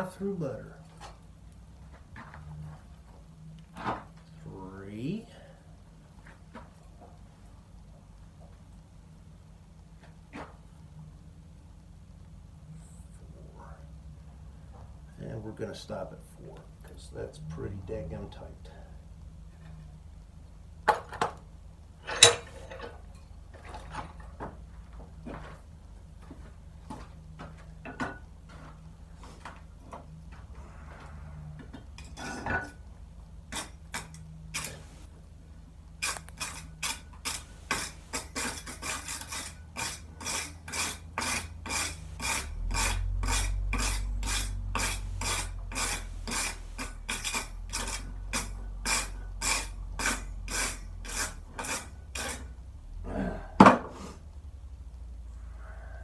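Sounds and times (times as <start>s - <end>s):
low steady rumble: 0.0s - 56.0s
rasping metal on metal: 32.0s - 32.8s, 33.5s - 35.0s, 36.0s - 52.6s.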